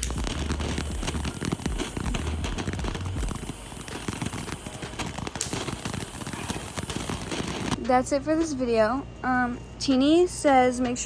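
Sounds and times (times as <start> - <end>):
low rumble: 0.0 - 3.7
sparkler crackling and fizzing: 0.0 - 7.9.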